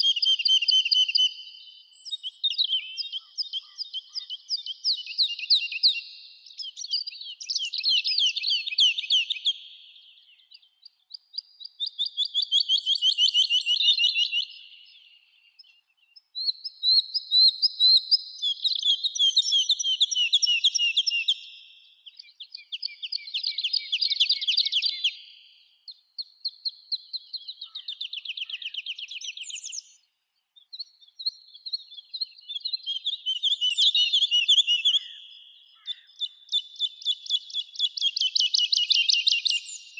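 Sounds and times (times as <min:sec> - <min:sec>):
songbirds trilling: 0:18.2 - 0:39.9.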